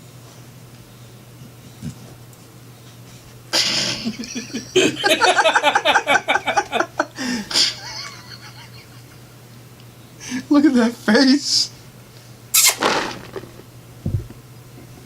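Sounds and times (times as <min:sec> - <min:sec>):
person laughing: 0:03.6 - 0:09.2.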